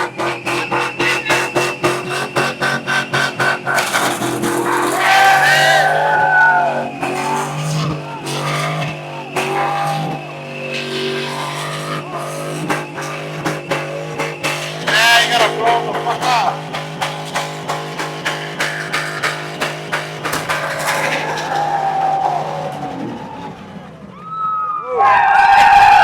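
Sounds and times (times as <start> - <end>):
car engine revving high: 0.0 - 24.2
music playing: 11.9 - 23.3.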